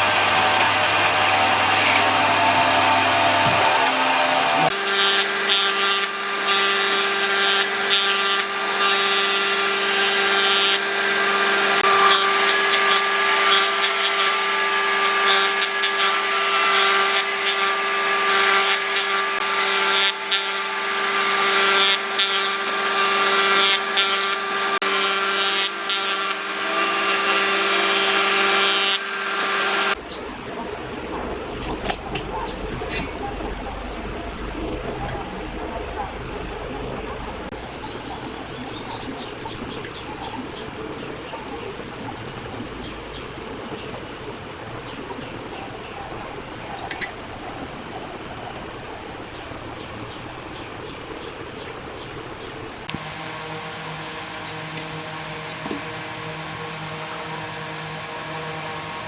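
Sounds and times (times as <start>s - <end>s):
power tool rasping wood: 0.0s - 30.1s, 52.9s - 59.0s.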